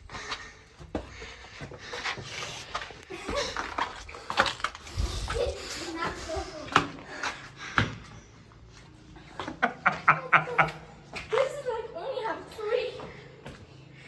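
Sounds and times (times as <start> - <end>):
footsteps on rock floor: 0.0 - 8.0.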